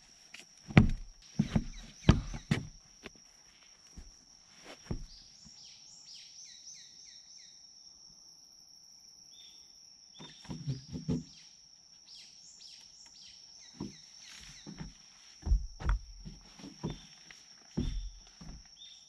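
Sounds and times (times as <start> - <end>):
knocks and rustles on wooden deck: 0.7 - 3.2, 4.0 - 5.2, 10.2 - 11.4, 13.7 - 18.8
songbird singing: 0.8 - 2.9, 4.9 - 8.1, 9.1 - 19.0.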